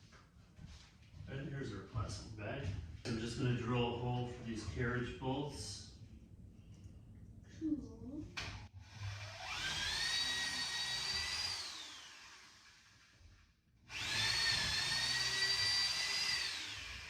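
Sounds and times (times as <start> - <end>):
power drill boring wood: 8.8 - 17.0.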